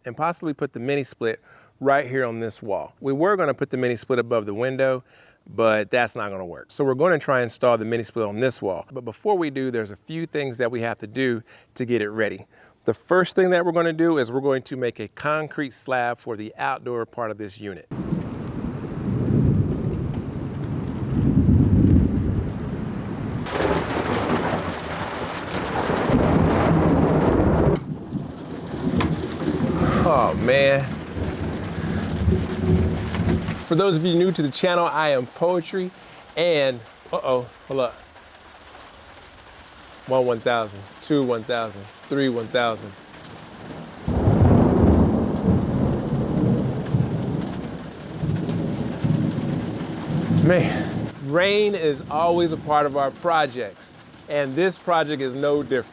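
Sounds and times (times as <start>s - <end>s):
heavy rain hissing: 17.9s - 27.6s, 28.5s - 55.9s
rolling thunder: 17.9s - 35.2s, 40.5s - 54.3s.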